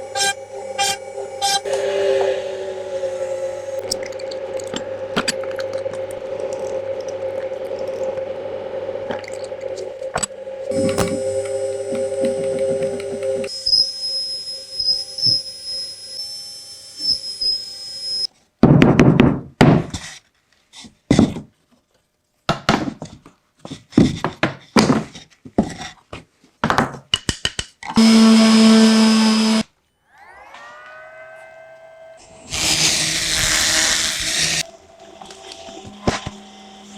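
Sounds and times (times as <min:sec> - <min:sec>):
machine hum: 0:00.0 - 0:18.3, 0:28.0 - 0:36.9
woodworking machine whining: 0:00.0 - 0:18.3, 0:28.0 - 0:36.9.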